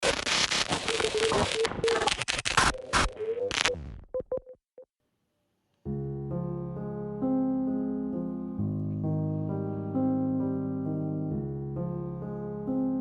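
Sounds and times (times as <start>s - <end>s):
crackling static bursts: 0.0s - 4.4s
piano music: 5.9s - 13.0s.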